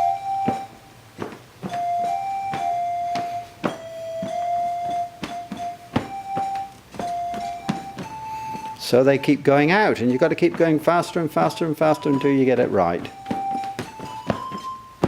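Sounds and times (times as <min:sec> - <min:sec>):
electronic chime tones: 0:00.0 - 0:00.8, 0:01.7 - 0:15.0
sharp knocks: 0:00.4 - 0:08.7, 0:13.0 - 0:15.0.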